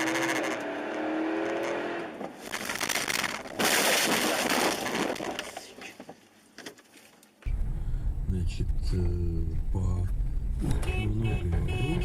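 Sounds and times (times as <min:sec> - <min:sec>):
car crash impact crunch: 0:02.1 - 0:05.6.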